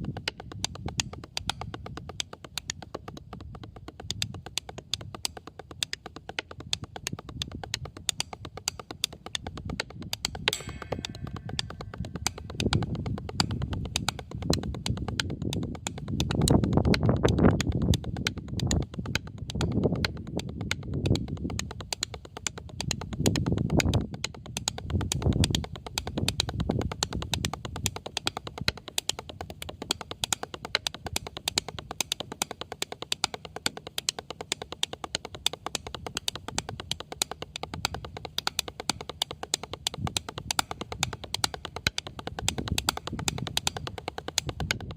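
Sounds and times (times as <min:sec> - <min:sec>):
fast even tapping: 0:00.0 - 0:44.9
wind rumble on microphone: 0:09.4 - 0:29.7, 0:39.8 - 0:44.9.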